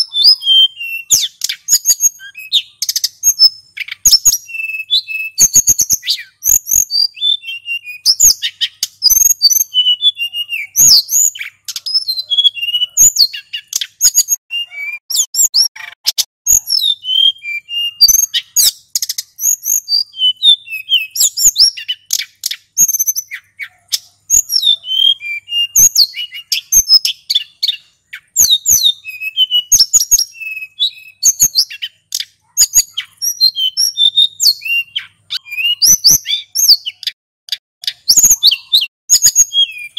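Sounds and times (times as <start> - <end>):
bird singing whistled trills: 0.0 - 37.2, 37.8 - 39.9
sharp bird clicks: 1.1 - 2.1, 13.3 - 14.4, 21.1 - 24.5, 31.5 - 33.4, 36.1 - 38.8.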